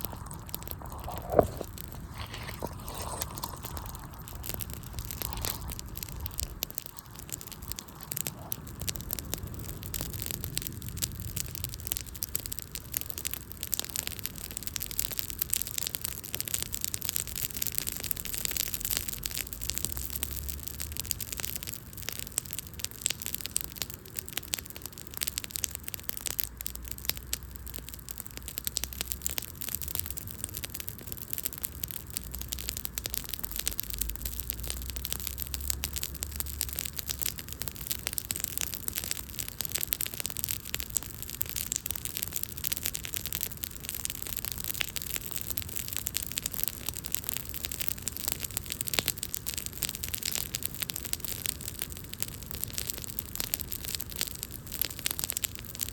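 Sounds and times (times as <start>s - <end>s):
hiss of burning: 0.0s - 12.3s
wood fire crackling: 0.0s - 55.9s.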